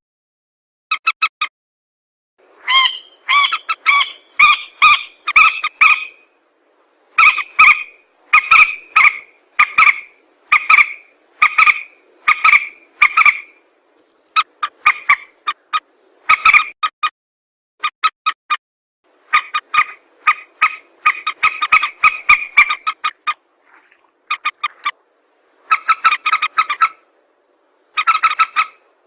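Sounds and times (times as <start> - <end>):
waterbird calls: 2.6 - 6.4, 7.1 - 16.8, 19.2 - 25.0, 25.6 - 27.1, 27.8 - 29.0.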